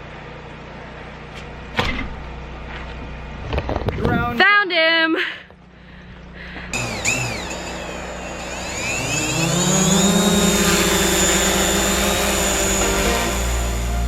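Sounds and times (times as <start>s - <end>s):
drone propellers whining: 6.5s - 14.0s.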